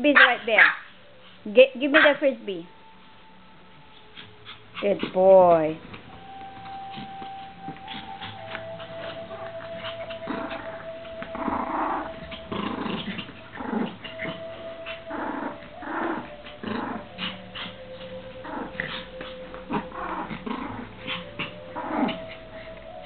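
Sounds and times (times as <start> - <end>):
small dogs growling: 6.6 - 23.0.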